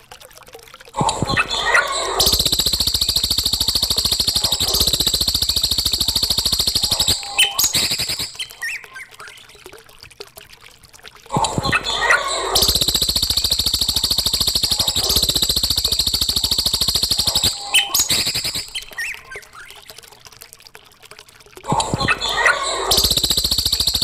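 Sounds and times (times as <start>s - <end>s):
songbird fast high trill: 2.2s - 8.8s, 12.5s - 19.4s
bird chirps and calls: 6.8s - 9.2s, 16.5s - 19.5s.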